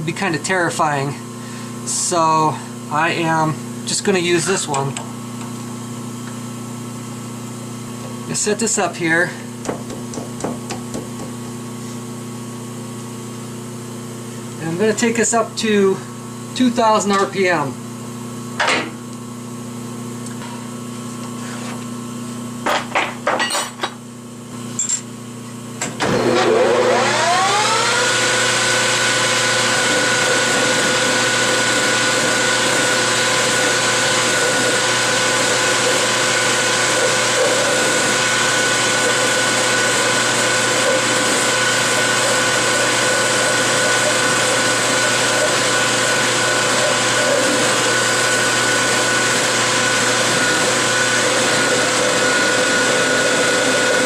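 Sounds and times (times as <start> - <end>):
metal lathe whine: 26.0 - 54.0.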